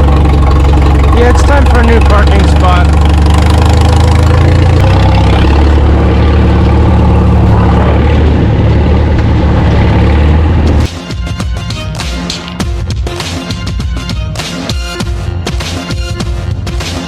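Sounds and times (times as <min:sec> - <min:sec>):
farm machine engine running: 0:00.0 - 0:10.9
music with drum beat: 0:10.9 - 0:17.0.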